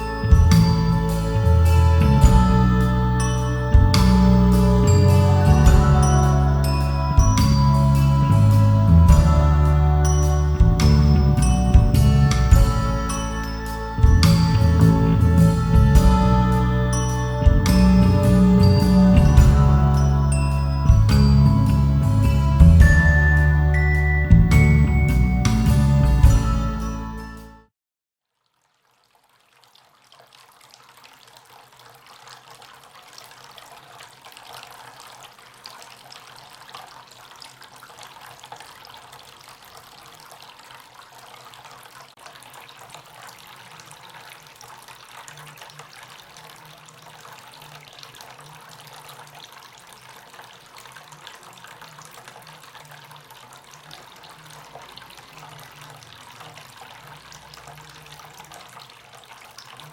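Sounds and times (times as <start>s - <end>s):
low hum: 0.0s - 26.9s
fountain water trickling: 0.0s - 27.6s, 28.4s - 59.9s.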